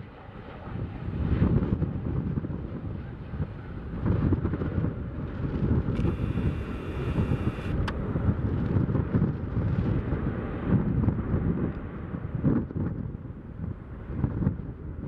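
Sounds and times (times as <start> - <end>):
wind buffeting the microphone: 0.0 - 15.0
sharp click: 5.9 - 6.6.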